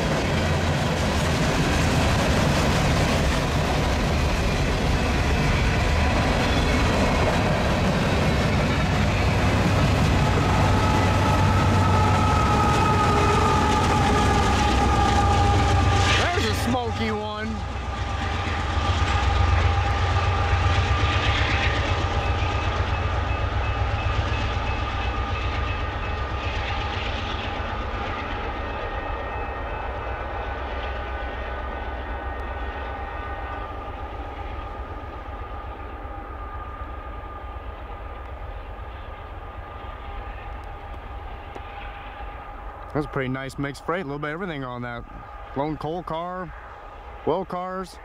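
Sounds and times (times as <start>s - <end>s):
freight train rumbling: 0.0s - 48.0s.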